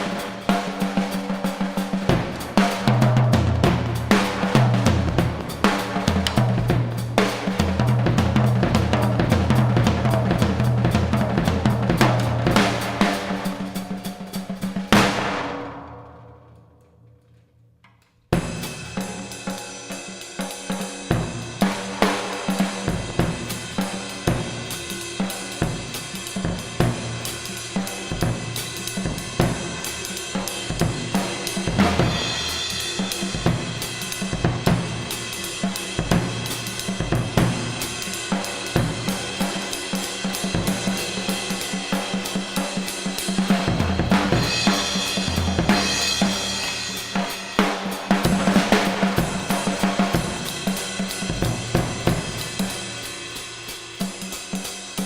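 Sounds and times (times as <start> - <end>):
drum kit solo: 0.0 - 16.3, 18.3 - 55.0
cymbal crashes: 22.1 - 55.0.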